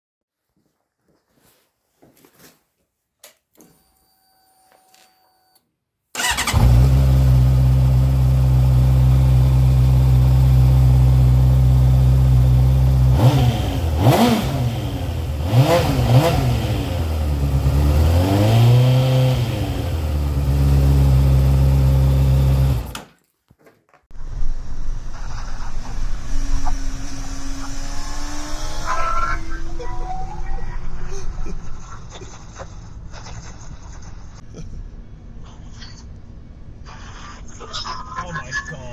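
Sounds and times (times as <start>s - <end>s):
motorcycle engine revving: 6.2s - 23.0s, 25.7s - 29.8s
quieter engine-like noise: 24.2s - 32.7s.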